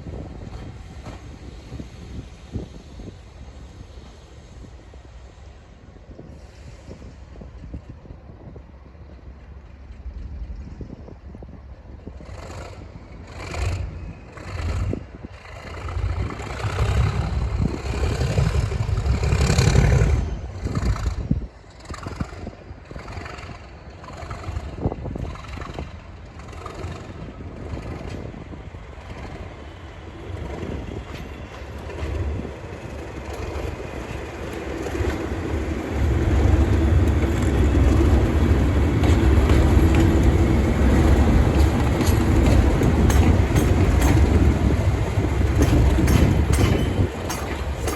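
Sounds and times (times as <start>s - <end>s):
diesel locomotive engine drone: 0.0s - 47.9s
wheels clicking over rail joints: 12.1s - 47.9s.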